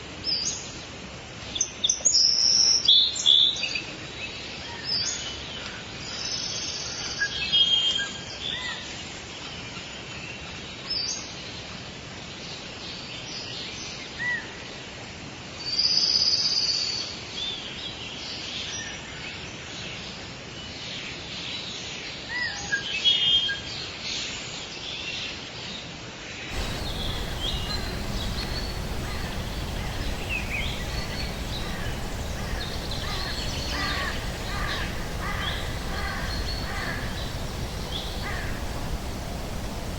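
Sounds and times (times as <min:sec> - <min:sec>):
background hiss: 0:26.5 - 0:39.9
birds calling and chirping: 0:26.5 - 0:39.9.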